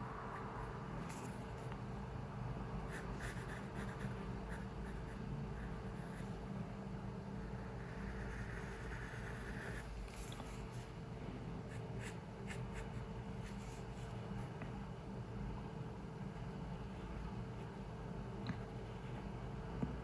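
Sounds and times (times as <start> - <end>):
low room hum: 0.0 - 20.0
pencil scratching on paper: 2.9 - 6.4, 7.4 - 10.9, 11.7 - 14.5.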